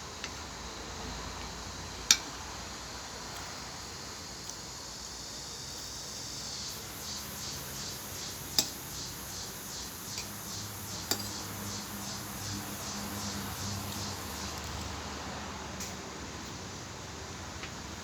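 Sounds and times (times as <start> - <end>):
cutlery clinking on a plate: 8.6 - 8.8, 11.1 - 11.4.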